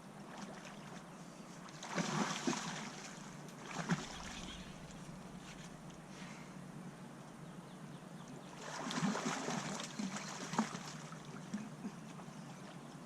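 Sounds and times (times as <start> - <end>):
water splashing: 1.7 - 6.0, 8.6 - 12.3.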